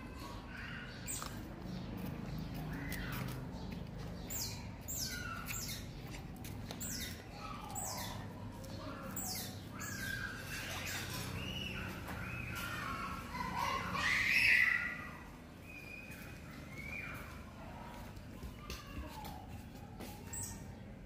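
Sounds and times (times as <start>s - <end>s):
birds squawking: 0.1s - 6.1s, 6.8s - 17.6s.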